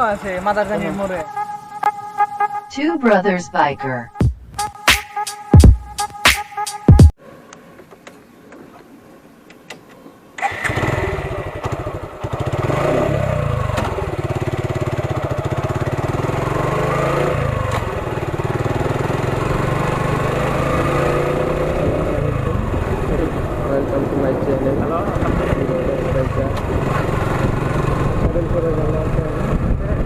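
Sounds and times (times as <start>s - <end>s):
motorcycle engine running: 10.9s - 20.6s, 21.5s - 30.0s.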